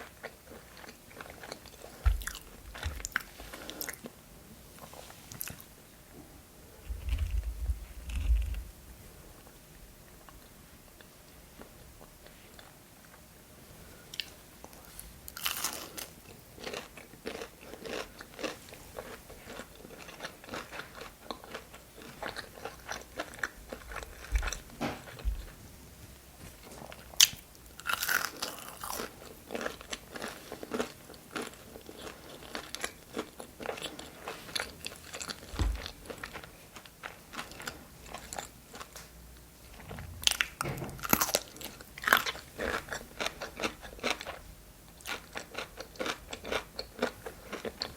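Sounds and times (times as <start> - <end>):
crunchy food chewing: 0.0 - 4.2, 6.8 - 8.8, 14.1 - 25.6, 26.6 - 39.0, 39.7 - 47.9.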